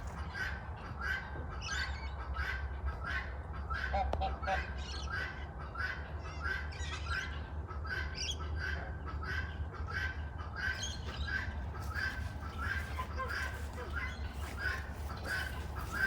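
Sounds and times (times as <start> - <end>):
steady low hum: 0.0 - 16.0
bird squawking: 7.9 - 16.0.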